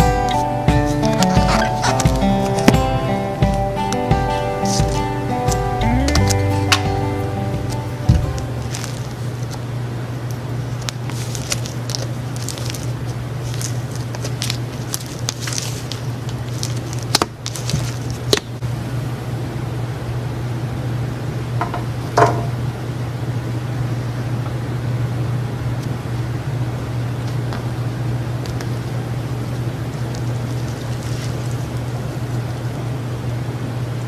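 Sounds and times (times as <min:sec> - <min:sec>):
steady low hum: 0:00.0 - 0:34.0
slime squishing and popping: 0:10.8 - 0:18.6.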